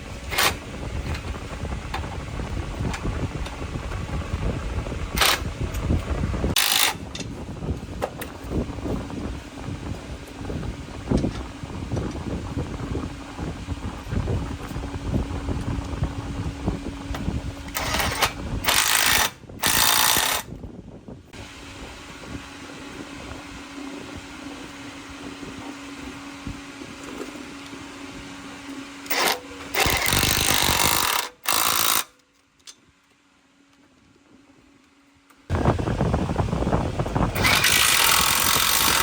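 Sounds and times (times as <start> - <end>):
machinery motor hum: 0.0 - 20.4, 35.5 - 39.0
loud noisy machine bursts: 17.6 - 20.5, 29.0 - 32.1, 35.5 - 39.0.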